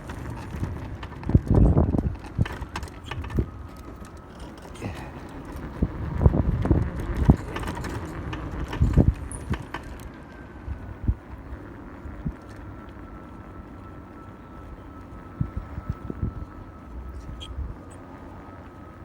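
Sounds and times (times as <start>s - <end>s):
bike clunking and rattling: 0.0s - 12.7s
faint high electric whine: 0.0s - 19.0s.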